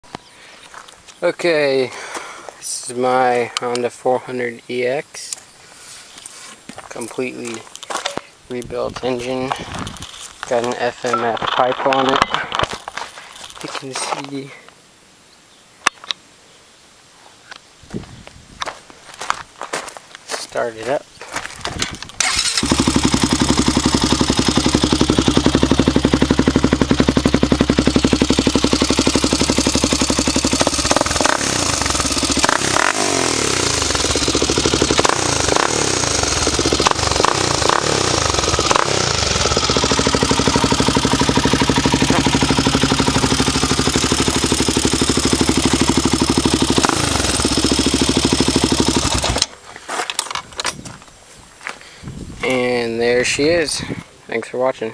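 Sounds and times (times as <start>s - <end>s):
engine ticking: 22.2s - 49.5s
quad engine idling and revving: 22.2s - 49.5s.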